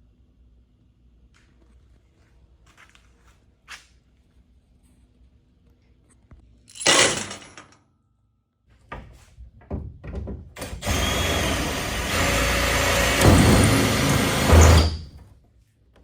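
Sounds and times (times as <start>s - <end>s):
power tool running: 10.6s - 15.2s.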